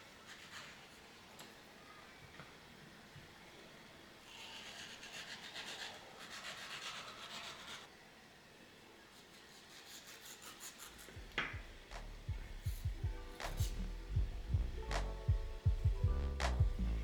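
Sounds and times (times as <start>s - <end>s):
rhythmic scraping strokes: 10.4s - 17.0s.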